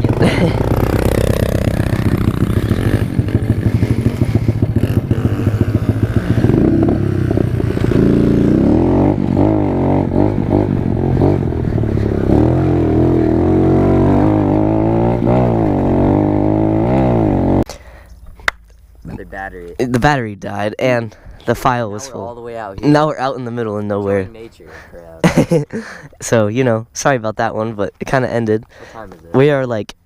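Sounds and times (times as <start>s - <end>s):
pit bike engine revving: 0.0s - 17.7s.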